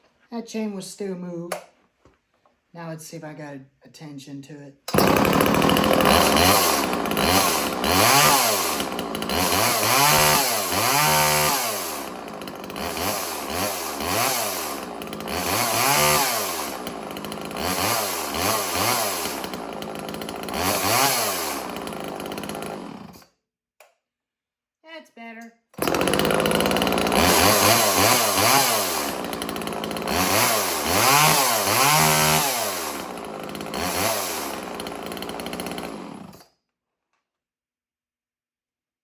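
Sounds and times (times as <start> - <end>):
chainsaw revving: 4.9 - 23.3, 25.8 - 36.5.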